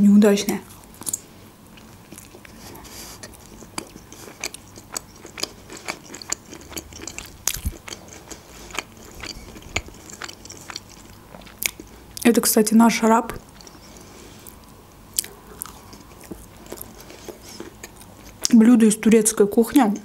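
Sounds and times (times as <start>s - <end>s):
crunchy chewing: 0.7s - 12.3s, 13.3s - 18.6s
wet mouth clicks: 3.2s - 12.3s.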